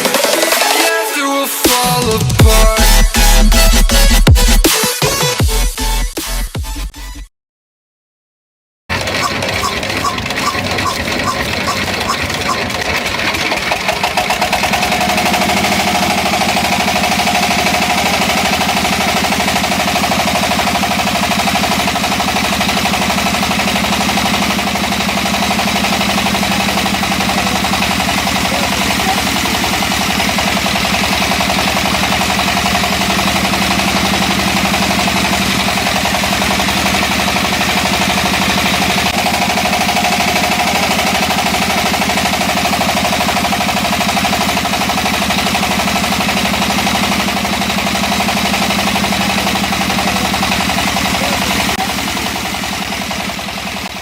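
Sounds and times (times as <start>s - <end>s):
small motor pulsing: 8.9s - 44.3s.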